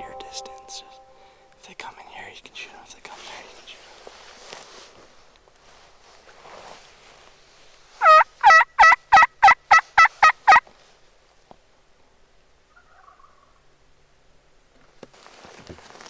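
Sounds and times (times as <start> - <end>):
turkey yelps: 8.0 - 10.6, 12.7 - 13.6.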